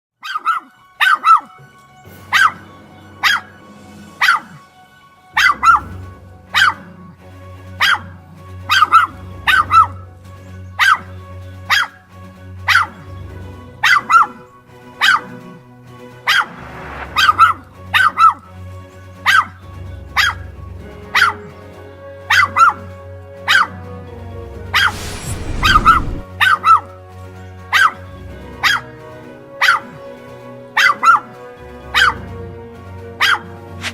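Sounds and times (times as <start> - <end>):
dog barking: 0.2 - 1.5, 3.2 - 3.5, 4.2 - 4.6, 7.8 - 8.1, 33.2 - 33.9
burst of rushing noise: 24.8 - 26.3.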